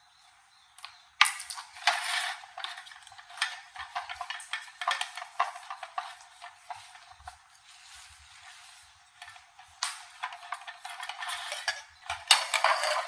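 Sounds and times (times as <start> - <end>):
metal parts clinking and scraping: 1.4 - 7.4, 8.3 - 13.0.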